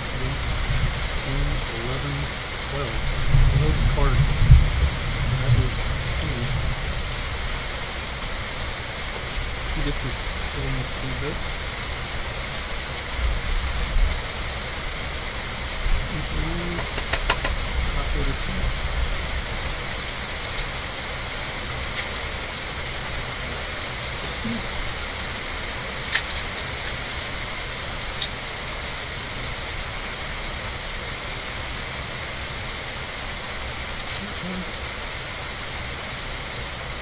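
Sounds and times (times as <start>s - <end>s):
steady rain falling: 0.0s - 37.0s
sharp clicks: 16.6s - 17.6s.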